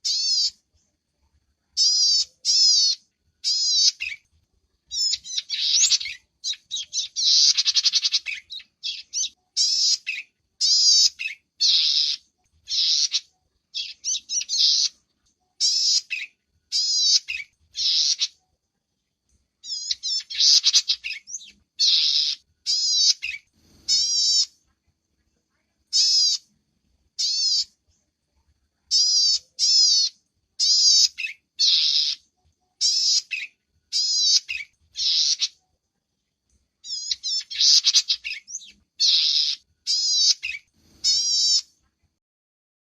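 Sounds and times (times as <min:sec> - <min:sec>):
small bird chattering calls: 0:00.0 - 0:00.6, 0:01.8 - 0:04.2, 0:04.9 - 0:15.0, 0:15.6 - 0:18.4, 0:19.6 - 0:24.6, 0:25.9 - 0:26.5, 0:27.2 - 0:27.8, 0:28.9 - 0:35.6, 0:36.8 - 0:41.7.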